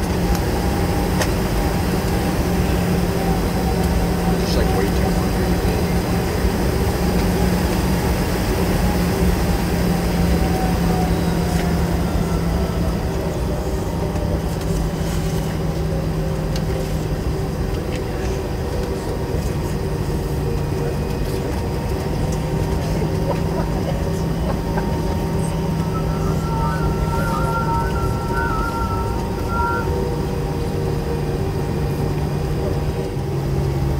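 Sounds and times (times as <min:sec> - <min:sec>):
airplane cabin drone: 0:00.0 - 0:33.9
low engine hum: 0:00.0 - 0:33.9
faint falling tone: 0:25.4 - 0:30.1.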